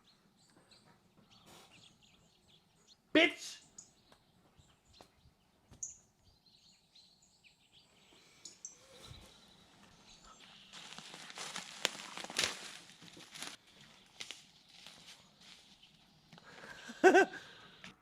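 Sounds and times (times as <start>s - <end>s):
high bird chirps: 0.0s - 13.2s.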